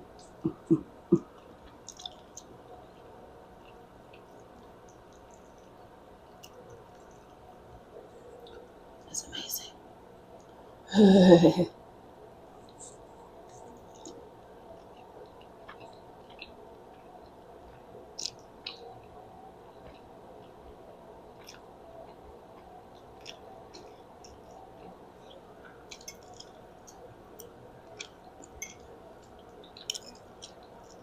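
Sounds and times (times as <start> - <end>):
mouth chewing with wet smacks: 0.2 - 2.6, 18.1 - 19.1.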